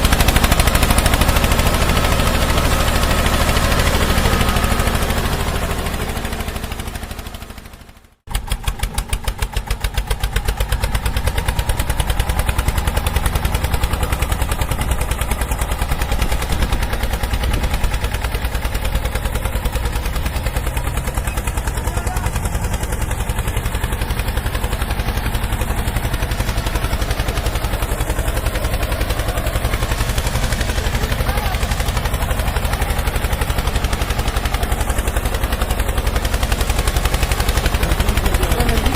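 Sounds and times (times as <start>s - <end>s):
heavy engine chugging: 0.0s - 38.9s.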